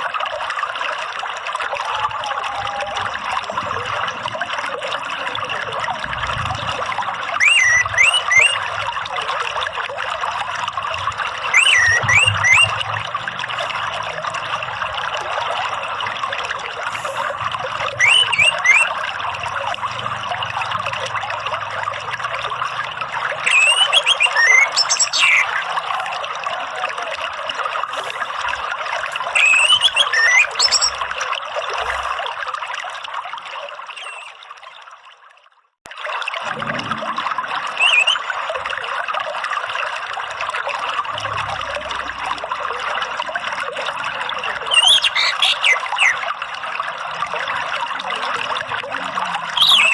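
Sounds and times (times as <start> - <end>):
water trickling: 0.0 - 49.9
thrush singing whistled notes: 7.4 - 8.7, 11.4 - 13.8, 17.0 - 19.1, 23.4 - 26.1, 29.1 - 31.2, 33.9 - 34.4, 37.8 - 38.4, 44.7 - 46.2, 49.5 - 49.9.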